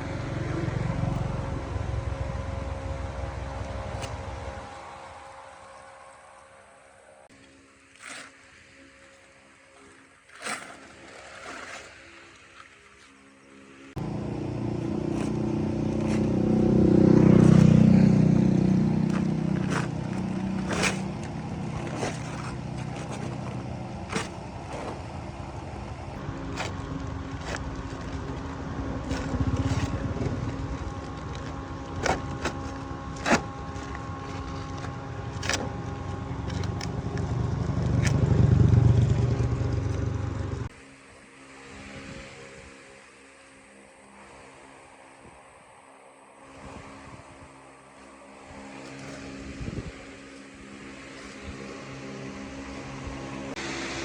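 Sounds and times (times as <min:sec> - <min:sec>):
car engine revving: 0:14.0 - 0:40.7.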